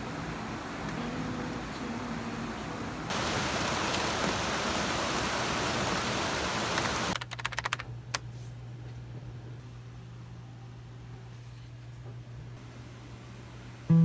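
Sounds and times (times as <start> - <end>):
steady rain hiss: 0.0 - 7.2.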